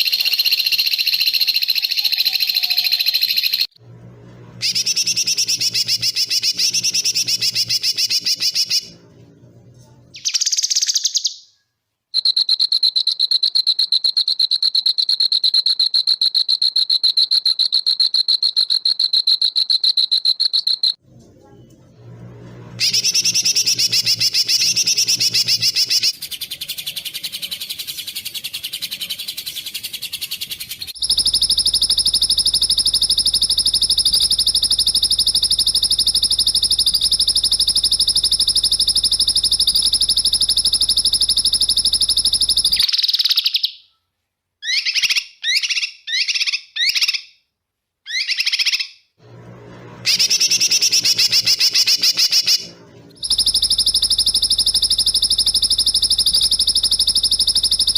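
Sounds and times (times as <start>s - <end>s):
fast buzzing bird trill: 0.0s - 3.8s, 4.6s - 8.9s, 22.8s - 43.6s, 50.0s - 57.9s
high steady buzzing trill: 31.0s - 42.8s, 50.0s - 57.9s.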